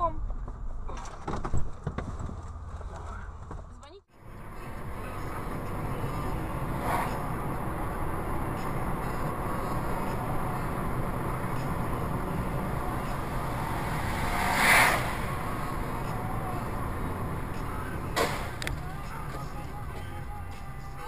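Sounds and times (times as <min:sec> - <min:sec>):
car engine and road noise: 0:00.0 - 0:21.0
whoosh: 0:12.4 - 0:16.9.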